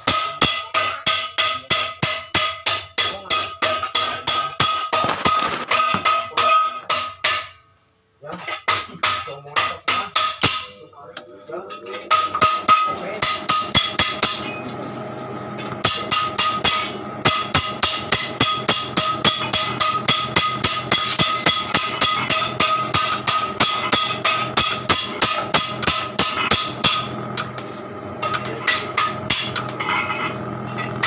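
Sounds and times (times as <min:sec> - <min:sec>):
hammer beating on metal: 0:00.0 - 0:07.7, 0:08.4 - 0:10.9, 0:11.7 - 0:14.6, 0:15.8 - 0:27.5.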